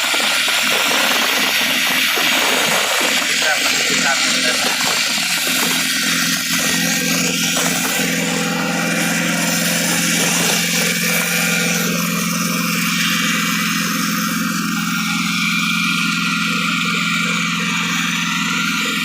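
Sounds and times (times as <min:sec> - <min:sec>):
air compressor hissing: 0:00.0 - 0:19.0
rock drill engine hum: 0:00.0 - 0:19.0.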